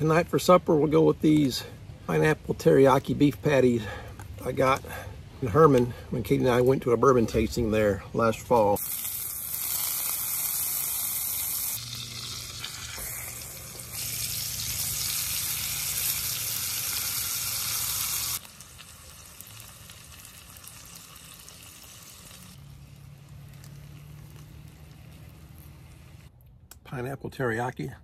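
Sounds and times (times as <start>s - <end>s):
food sizzling in a skillet: 8.8s - 26.3s.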